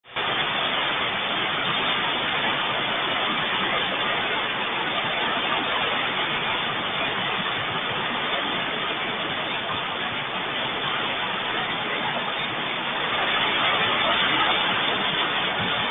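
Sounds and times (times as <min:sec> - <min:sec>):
steady rain: 0:00.0 - 0:15.9.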